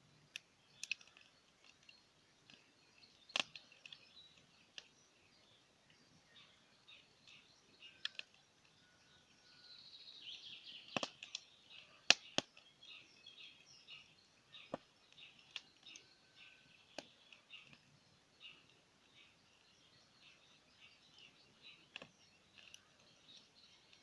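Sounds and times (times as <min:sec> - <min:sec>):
birds chirping: 0:00.0 - 0:24.0
campfire crackling and popping: 0:00.1 - 0:08.8, 0:10.4 - 0:24.0.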